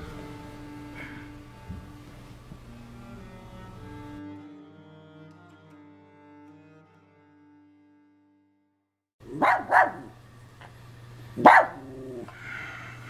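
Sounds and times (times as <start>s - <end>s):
low steady hum: 0.0s - 4.2s, 9.2s - 13.0s
slow bowed string music: 0.0s - 8.8s
dog barking: 9.2s - 10.2s, 11.4s - 12.3s.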